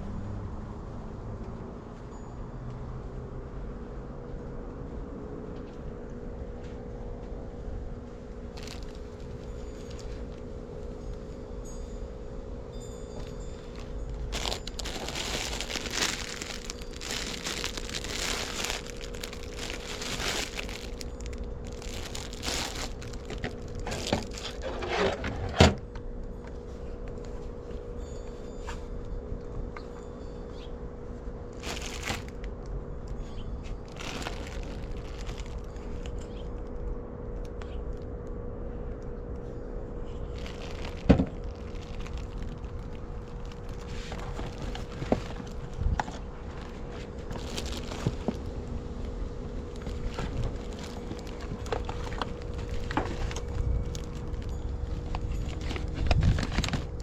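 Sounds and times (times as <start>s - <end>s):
steady hum: 4.9s - 57.0s
plastic and paper crinkling: 8.5s - 10.6s, 13.2s - 25.1s, 31.6s - 32.5s, 33.6s - 36.4s, 40.2s - 57.0s.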